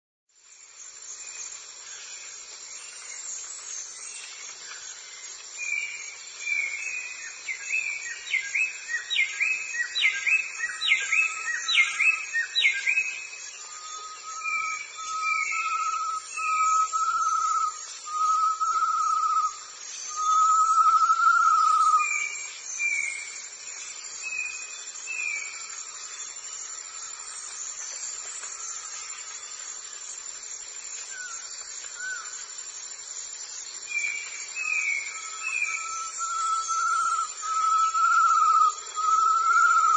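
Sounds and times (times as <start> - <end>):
insects chirring: 0.3 - 39.9
high whistle-like calls: 13.7 - 22.4, 34.6 - 39.9
whistled animal calls: 34.6 - 39.9.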